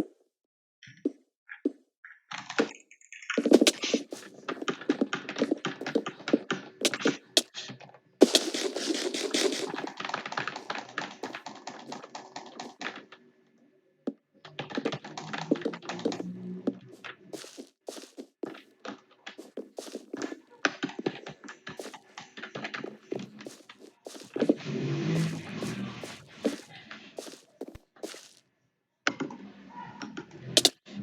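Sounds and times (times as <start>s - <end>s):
computer keyboard typing: 8.2s - 12.8s.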